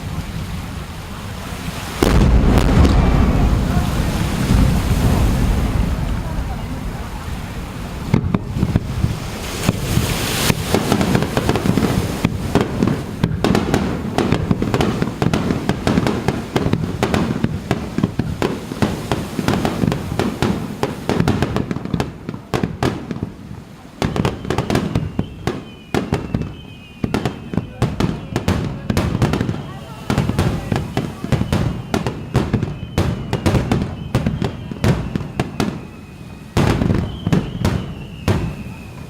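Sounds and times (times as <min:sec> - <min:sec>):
deep fireworks booms: 0:00.0 - 0:39.0
fireworks bursts and crackles: 0:00.0 - 0:39.0.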